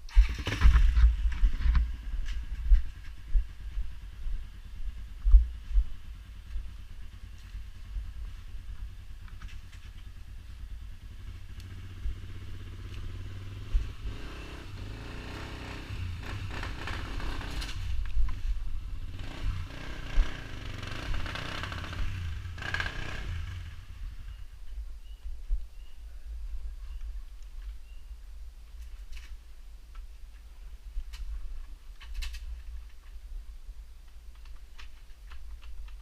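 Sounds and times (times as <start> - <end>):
low rumble: 0.0 - 29.0
off-road vehicle engine revving: 0.1 - 2.4, 11.0 - 17.9, 19.0 - 24.3.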